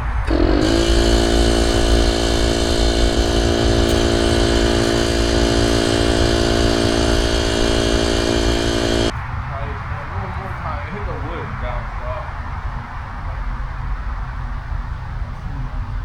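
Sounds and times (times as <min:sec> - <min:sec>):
engine running at high speed: 0:00.0 - 0:09.2
low rumble: 0:00.0 - 0:16.0.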